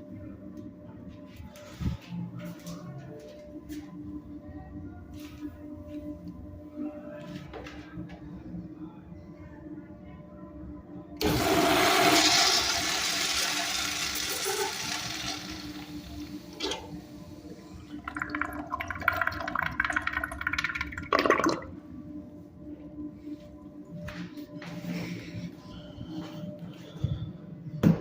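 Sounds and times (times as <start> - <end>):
toilet flushing water: 11.2 - 17.0, 17.9 - 21.7.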